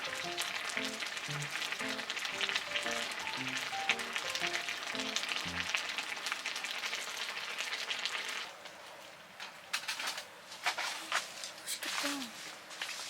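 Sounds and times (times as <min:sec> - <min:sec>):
food sizzling in a hot pan: 0:00.0 - 0:08.6.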